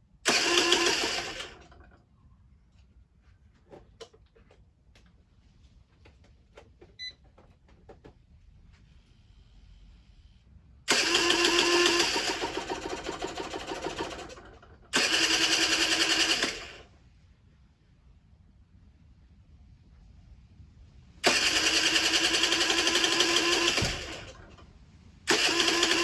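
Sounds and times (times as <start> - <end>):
two-stroke engine running rattly: 0.3 - 1.9, 10.9 - 16.9, 21.2 - 24.6, 25.3 - 26.0.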